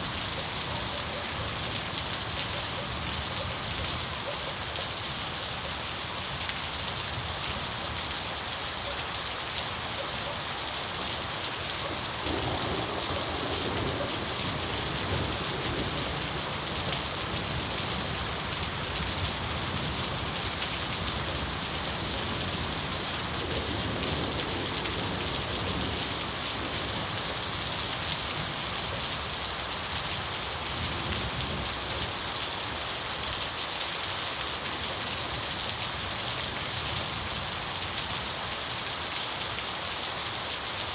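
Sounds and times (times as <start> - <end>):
steady rain falling: 0.0 - 40.9
thunder rumbling: 12.2 - 18.4.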